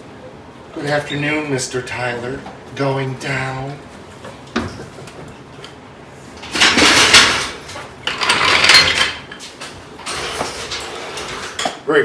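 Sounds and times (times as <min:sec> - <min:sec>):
metal scraping and clatter: 0:06.4 - 0:11.7.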